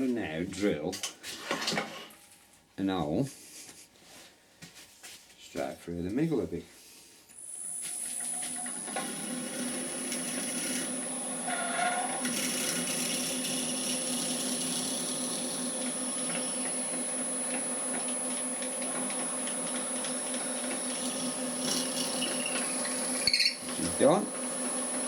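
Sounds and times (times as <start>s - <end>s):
electric drill boring: 7.4s - 25.0s.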